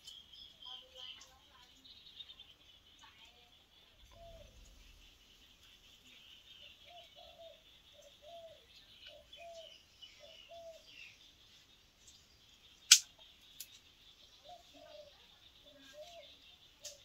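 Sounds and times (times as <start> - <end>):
bird calling: 0.0 - 11.4, 12.7 - 17.0
sharp crack: 12.8 - 13.7.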